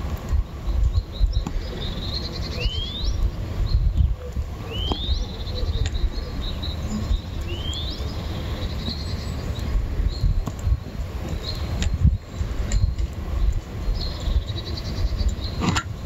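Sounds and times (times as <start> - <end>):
low outdoor rumble: 0.0 - 16.0
rising bird whistle: 1.0 - 3.2.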